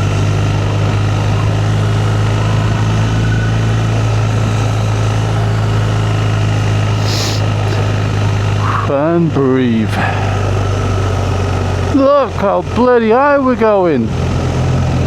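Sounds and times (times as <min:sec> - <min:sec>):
motorcycle engine running: 0:00.0 - 0:15.0
brief hiss: 0:07.0 - 0:07.5.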